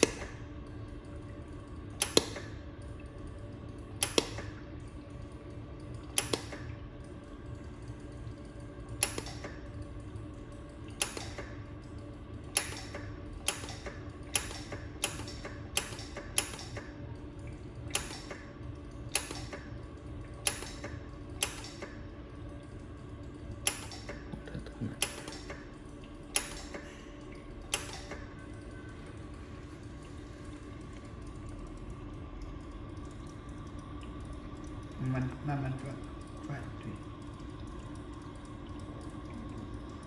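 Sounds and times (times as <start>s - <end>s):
cooling system hum: 0.0s - 40.0s
laser welder pulse snaps: 9.0s - 9.6s, 12.6s - 16.9s.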